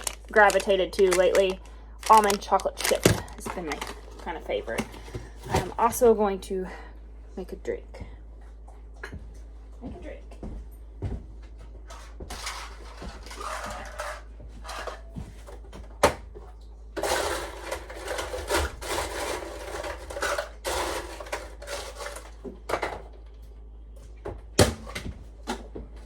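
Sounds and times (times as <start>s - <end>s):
ice rattling into a cup: 0.0s - 4.8s.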